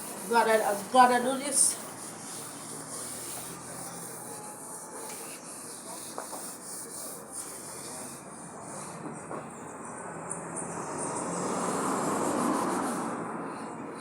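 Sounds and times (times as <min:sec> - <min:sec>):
sandpaper rubbing on metal panel: 0:00.0 - 0:02.9.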